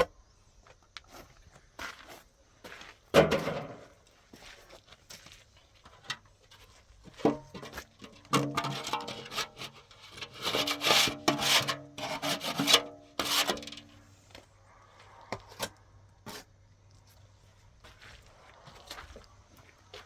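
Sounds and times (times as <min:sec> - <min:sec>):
rough scraping strokes: 0:08.3 - 0:14.2.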